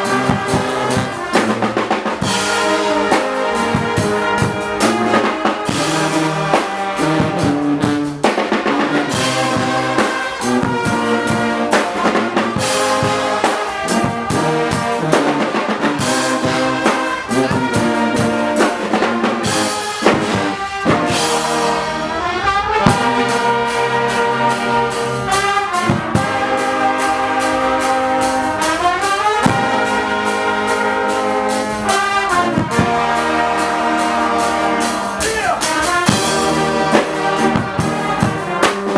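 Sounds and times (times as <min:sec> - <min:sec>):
pounding drum beat: 0:00.0 - 0:21.9, 0:22.8 - 0:38.9
brass band playing loudly: 0:00.0 - 0:38.9
sliding brass glissandos: 0:00.0 - 0:38.9.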